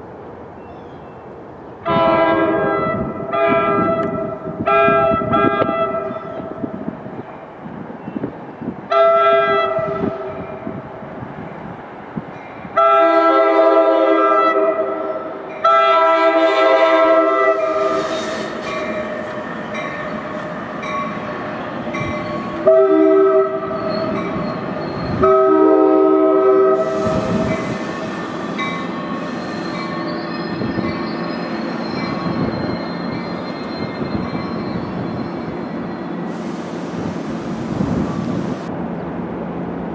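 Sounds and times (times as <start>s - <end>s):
moving train rumble: 0.0s - 39.9s
locomotive air horn blasts: 1.8s - 6.6s, 8.9s - 10.5s, 12.8s - 18.3s, 22.6s - 23.8s, 25.1s - 29.6s.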